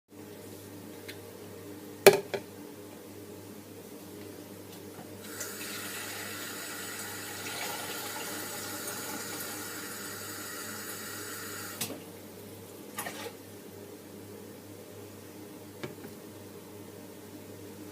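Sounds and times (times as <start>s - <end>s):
tap water filling a kettle: 5.2s - 12.0s.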